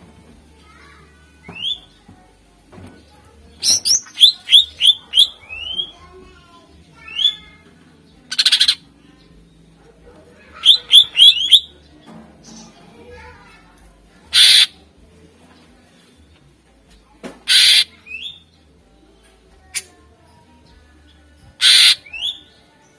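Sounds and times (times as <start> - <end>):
harsh bird rattle: 14.3 - 14.7, 17.4 - 17.9, 21.6 - 22.0.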